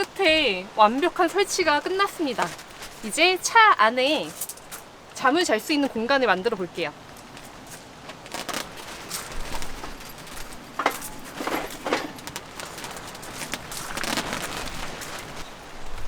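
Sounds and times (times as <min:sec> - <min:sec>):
camping gear knocking and rustling: 0:00.0 - 0:06.2, 0:07.0 - 0:16.0
wind rumbling on microphone: 0:05.9 - 0:16.0.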